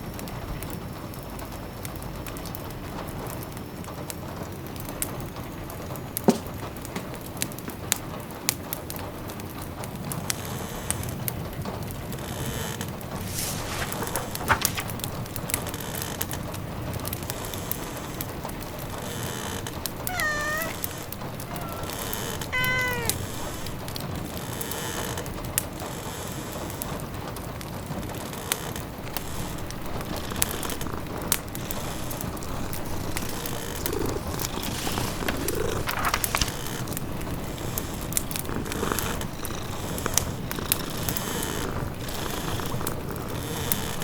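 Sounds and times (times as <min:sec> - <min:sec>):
log fire crackling: 0:12.9 - 0:17.3, 0:28.5 - 0:43.8
cat meowing: 0:20.0 - 0:23.9
rain pattering: 0:26.5 - 0:44.0.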